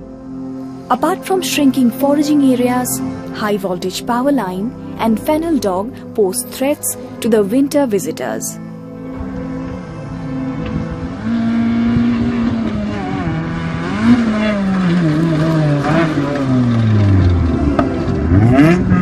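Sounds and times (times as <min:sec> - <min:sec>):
motor engine revving: 0:09.0 - 0:19.0.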